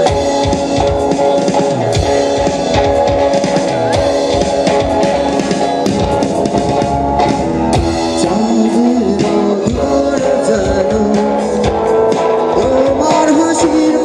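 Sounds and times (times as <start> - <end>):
drum and percussion hits: 0.0 - 14.0
guitar: 0.0 - 14.0
person singing: 7.7 - 14.0.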